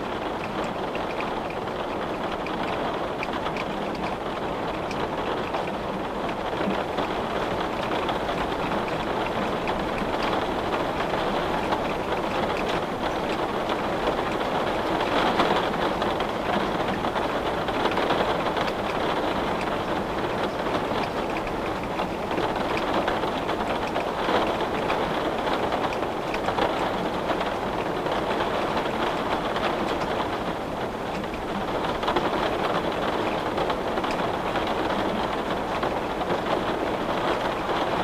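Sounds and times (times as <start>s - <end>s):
rain on window glass: 0.0s - 38.0s.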